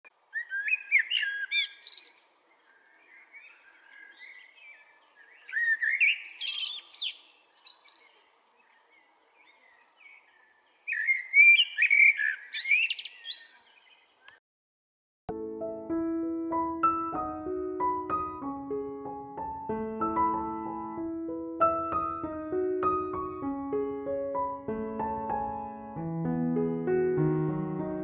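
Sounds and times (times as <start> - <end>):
soft bird chirps: 0.3 - 14.4.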